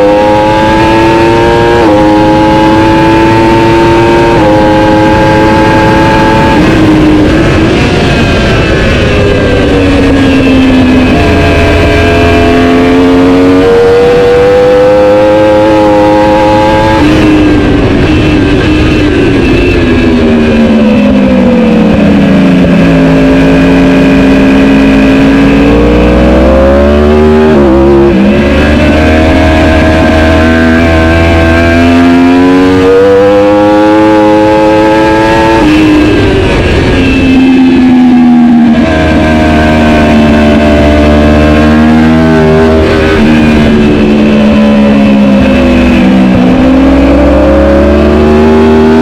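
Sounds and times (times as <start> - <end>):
motorcycle engine accelerating: 0.0 - 49.0.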